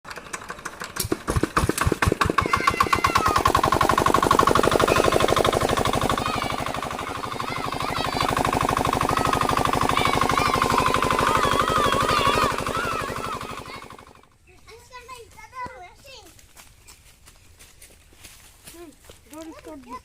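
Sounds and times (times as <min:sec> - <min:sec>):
diesel engine starting: 0:00.0 - 0:14.4.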